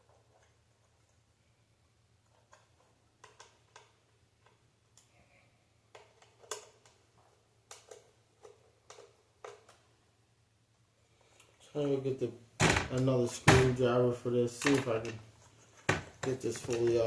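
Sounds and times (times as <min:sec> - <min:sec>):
light clicks of plastic parts: 0:16.1 - 0:17.0.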